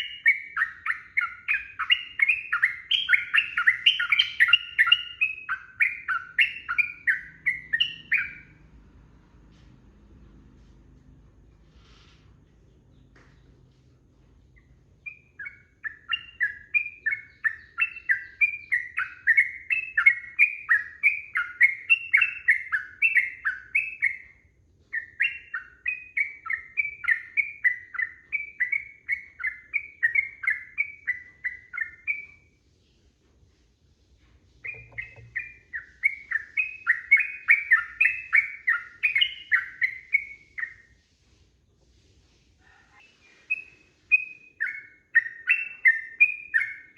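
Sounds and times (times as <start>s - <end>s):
bird warbling song: 0.0s - 8.6s, 14.4s - 32.5s, 34.5s - 41.0s, 42.8s - 46.9s.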